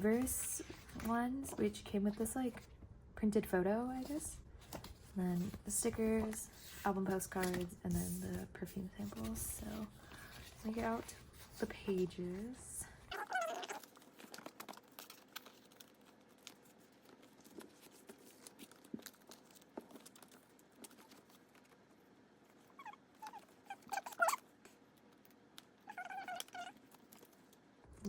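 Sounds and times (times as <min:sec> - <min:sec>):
plastic binder pages rustling: 0:00.0 - 0:02.7, 0:03.9 - 0:27.7
small animal high-pitched calls: 0:13.1 - 0:13.9, 0:22.7 - 0:24.4, 0:25.8 - 0:26.8.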